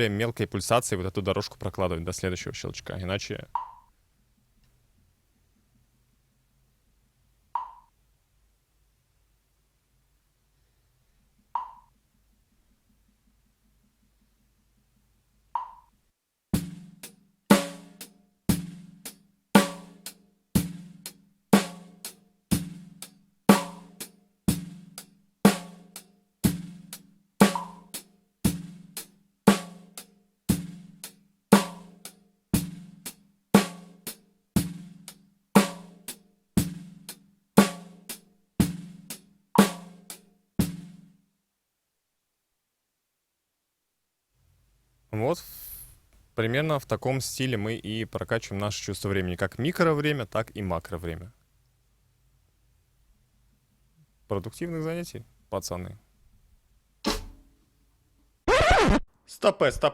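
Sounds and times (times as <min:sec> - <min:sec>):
metronome click: 0:03.6 - 0:03.8, 0:07.6 - 0:07.9, 0:11.6 - 0:11.9, 0:15.6 - 0:15.9
drum kit playing steady beat: 0:16.6 - 0:41.0, 0:57.0 - 0:57.5.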